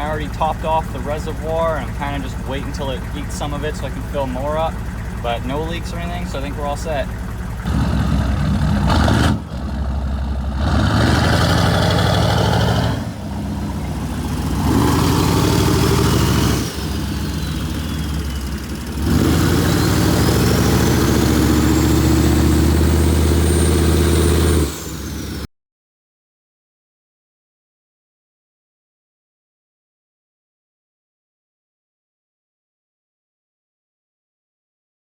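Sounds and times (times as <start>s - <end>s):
diesel engine revving: 0.0s - 25.5s.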